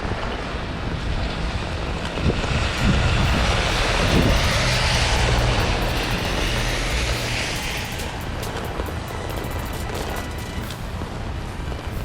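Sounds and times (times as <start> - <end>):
storm wind buffeting microphone: 0.0 - 8.3.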